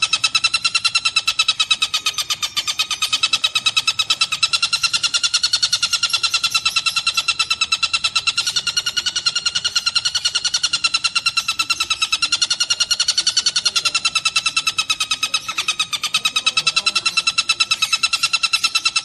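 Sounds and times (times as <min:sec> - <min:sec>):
kingfisher rattling chatter: 0:00.0 - 0:19.0.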